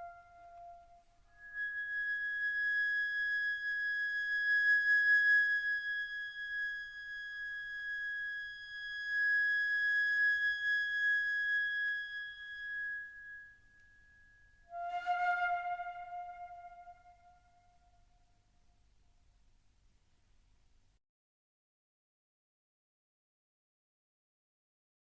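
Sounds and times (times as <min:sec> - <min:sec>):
flute holding high note: 0:14.7 - 0:17.6.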